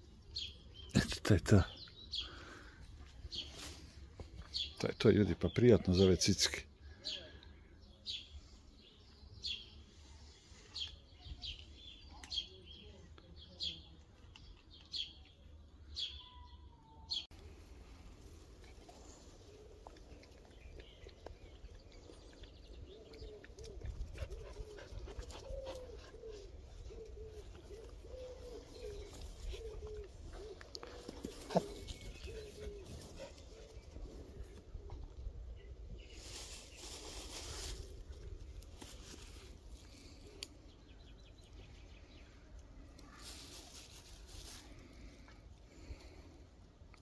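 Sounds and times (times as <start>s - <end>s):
rustling and shuffling: 3.1s - 4.6s, 23.6s - 35.0s, 36.0s - 40.2s, 42.8s - 45.2s
faint soft bird calls: 18.6s - 46.6s.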